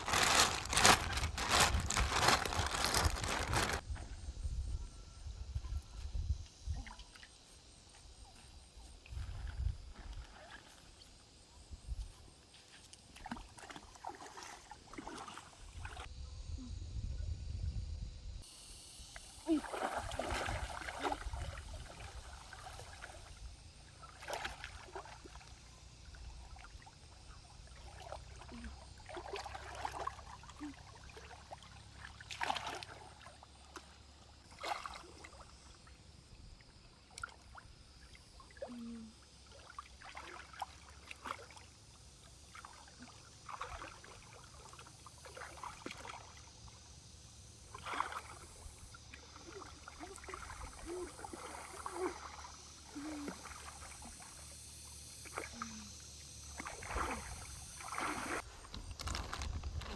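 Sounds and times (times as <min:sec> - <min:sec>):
water splashing in stream: 0:00.0 - 0:03.8, 0:12.8 - 0:16.1, 0:19.4 - 0:35.9, 0:39.4 - 0:46.9, 0:47.6 - 0:54.5, 0:55.2 - 0:59.9.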